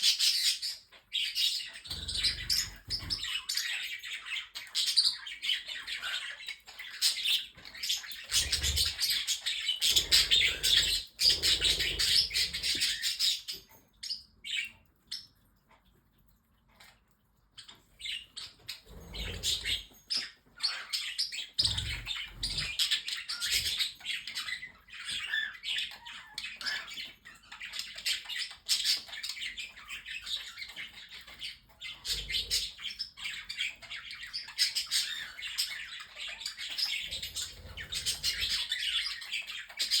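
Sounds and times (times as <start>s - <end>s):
birds chattering and chirping: 0.0s - 40.0s.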